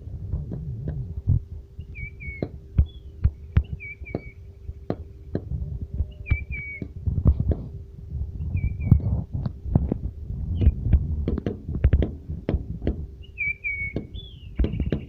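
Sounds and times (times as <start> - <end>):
faint steady hum: 0.0 - 15.0
low thumping rumble: 0.0 - 15.0
bird whistling downward notes: 1.8 - 5.4, 6.0 - 7.0, 8.4 - 9.1, 13.2 - 15.0.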